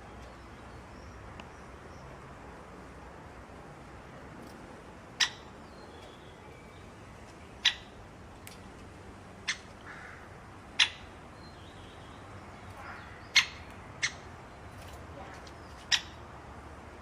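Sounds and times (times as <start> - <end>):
bird chirping: 5.2 - 8.0, 10.8 - 16.3.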